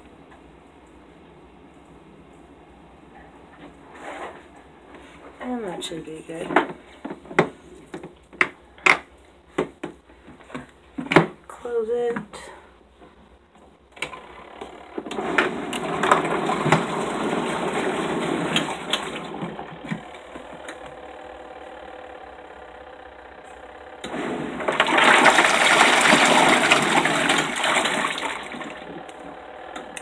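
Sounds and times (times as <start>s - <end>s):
washing machine churning water: 14.1s - 30.0s
sloshing water: 24.3s - 29.0s.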